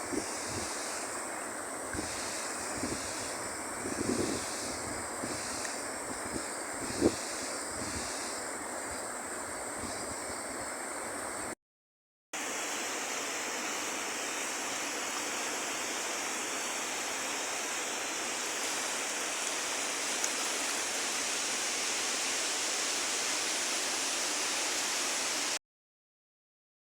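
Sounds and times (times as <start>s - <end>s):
river water rushing: 12.4s - 25.6s.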